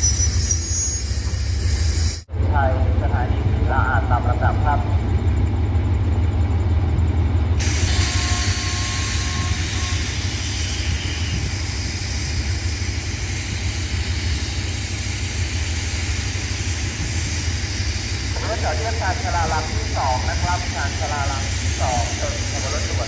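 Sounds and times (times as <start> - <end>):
diesel train engine rumble: 0.0 - 23.0
air hissing: 7.6 - 23.0.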